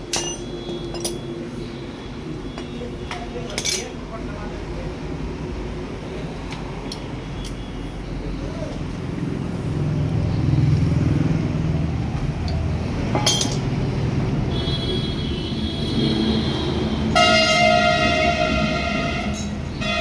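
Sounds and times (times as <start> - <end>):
loud horn-like tone: 14.5 - 20.0.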